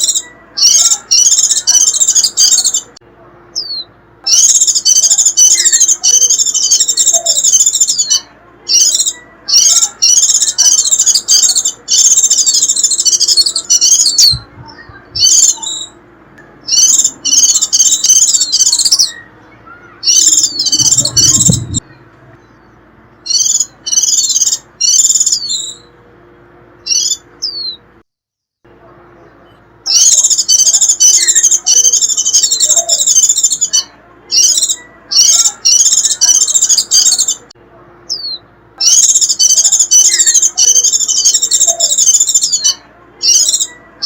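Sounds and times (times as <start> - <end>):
bird chattering call: 0.0 - 2.9, 3.6 - 16.0, 16.6 - 22.0, 29.8 - 37.5, 38.1 - 43.8.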